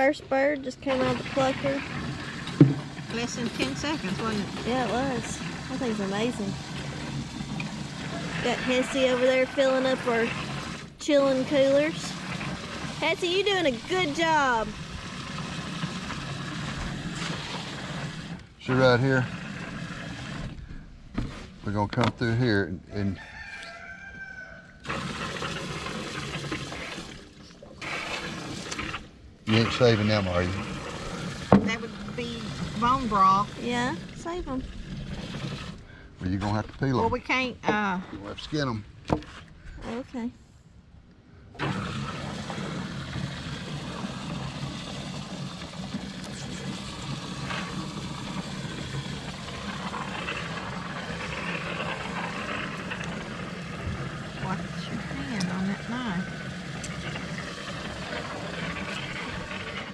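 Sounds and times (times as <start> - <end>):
motor-driven machine humming: 0.0 - 20.6, 27.8 - 35.9, 41.6 - 59.9
water running and splashing: 0.6 - 20.6, 24.8 - 35.9, 41.6 - 59.9.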